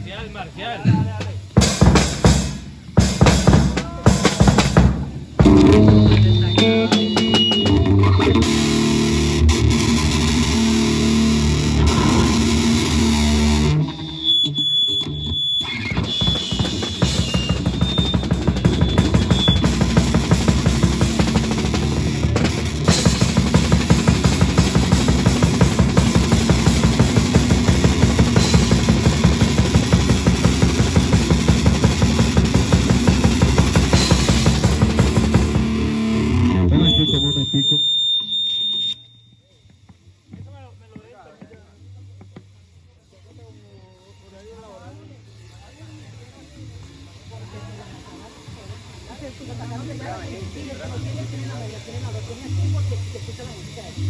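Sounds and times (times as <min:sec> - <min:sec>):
fast bass drum strokes: 0:00.8 - 0:14.4, 0:15.0 - 0:37.8
metal band playing live: 0:01.4 - 0:37.5
distorted electric guitar chords: 0:01.4 - 0:39.0.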